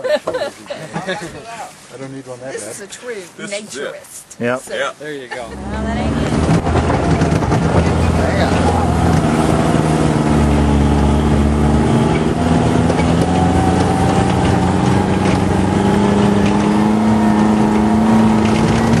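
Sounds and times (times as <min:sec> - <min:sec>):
off-road vehicle engine driving: 0:04.8 - 0:19.0.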